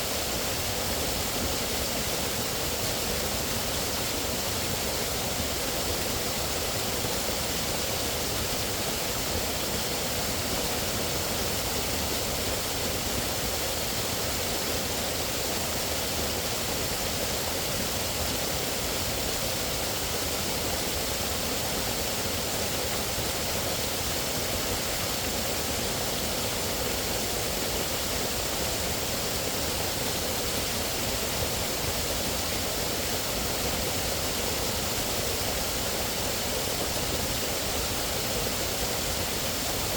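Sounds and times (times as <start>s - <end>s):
rushing flowing water: 0.0s - 39.9s.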